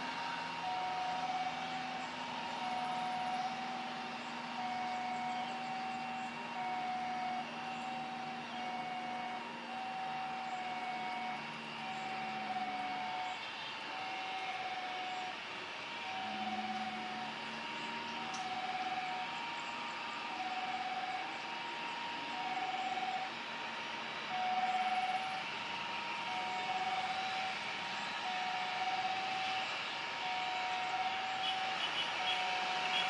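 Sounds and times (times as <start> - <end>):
engine and traffic noise: 0.0 - 33.0.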